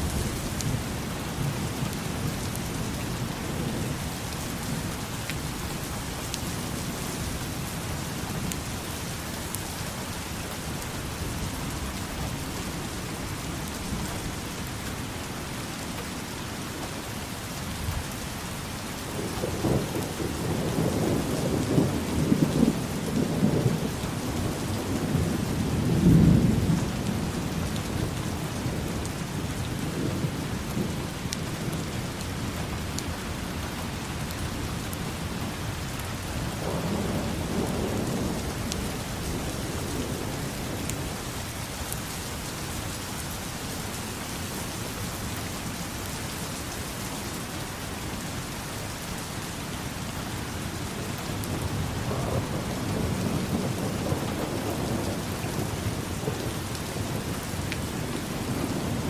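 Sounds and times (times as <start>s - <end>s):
steady rain falling: 0.0s - 59.0s
thunder rumbling: 36.6s - 41.5s, 51.5s - 59.0s.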